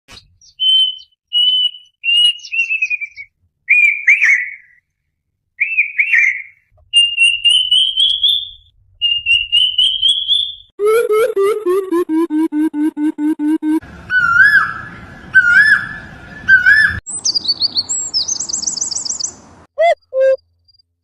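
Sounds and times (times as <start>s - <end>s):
bird whistling song: 0.2s - 4.8s, 5.6s - 10.7s, 14.1s - 20.4s.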